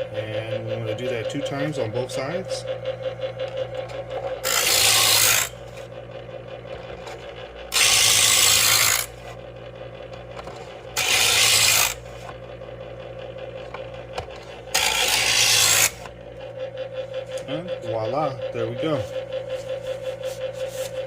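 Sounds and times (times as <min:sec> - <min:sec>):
knife sharpener motor humming: 0:00.0 - 0:21.0
scissor blades grinding: 0:03.4 - 0:05.9, 0:06.8 - 0:09.4, 0:10.2 - 0:12.4, 0:13.6 - 0:16.6, 0:18.2 - 0:21.0.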